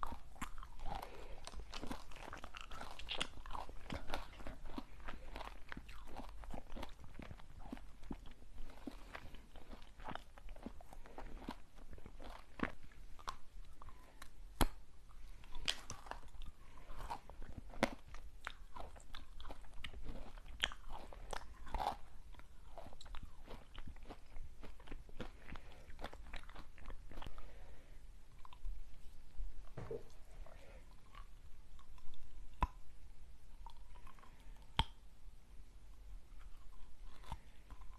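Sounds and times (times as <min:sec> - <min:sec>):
crunchy snack eating: 0:00.0 - 0:27.8, 0:36.4 - 0:37.9
chewing: 0:00.0 - 0:32.8, 0:33.6 - 0:35.0, 0:36.3 - 0:37.9.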